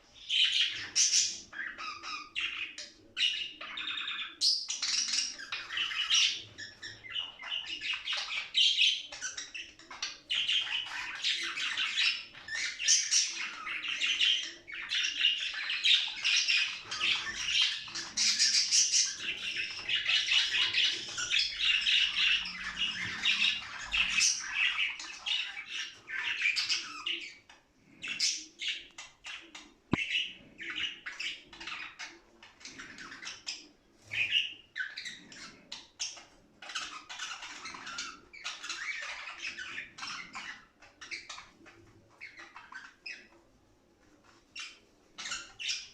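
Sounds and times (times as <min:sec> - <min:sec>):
budgerigars chirping and warbling: 0:00.0 - 0:43.5, 0:44.2 - 0:45.9.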